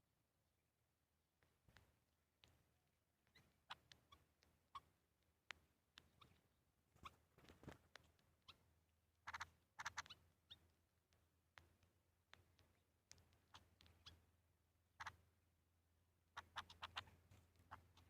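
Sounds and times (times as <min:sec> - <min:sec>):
small birds chirping: 0:01.3 - 0:18.0
buzzy rapid bird calls: 0:09.2 - 0:10.7, 0:13.4 - 0:14.3, 0:14.9 - 0:15.2, 0:16.3 - 0:18.0.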